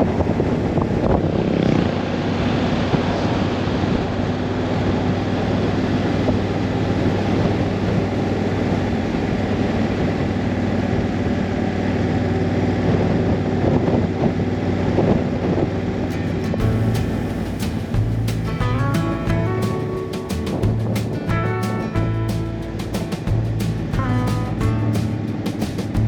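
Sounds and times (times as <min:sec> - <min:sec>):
wind noise: 0:00.0 - 0:10.4, 0:13.0 - 0:26.0
road noise: 0:00.0 - 0:26.0
motorcycle engine running: 0:16.1 - 0:26.0.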